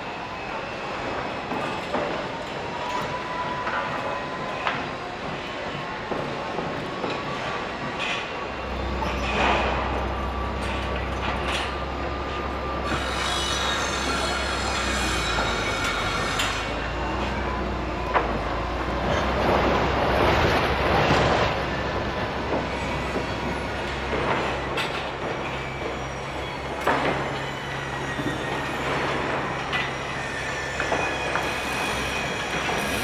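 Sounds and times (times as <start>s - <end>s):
construction machinery rumbling: 8.4s - 33.0s
high metallic squeals: 8.6s - 33.0s.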